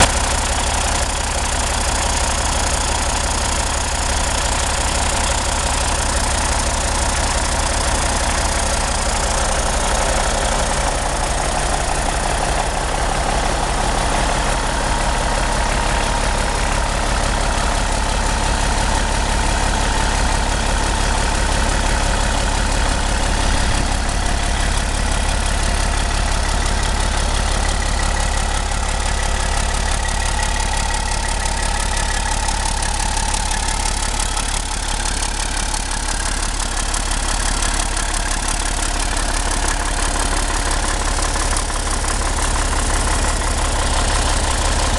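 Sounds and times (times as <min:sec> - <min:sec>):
diesel engine running steadily: 0:00.0 - 0:44.9.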